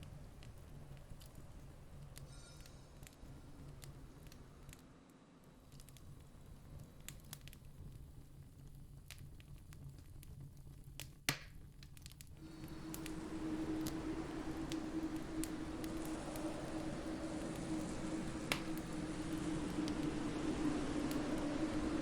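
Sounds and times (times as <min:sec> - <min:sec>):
campfire crackling and popping: 0:05.6 - 0:22.0
low drone: 0:12.4 - 0:22.0
rush of noise: 0:12.4 - 0:22.0.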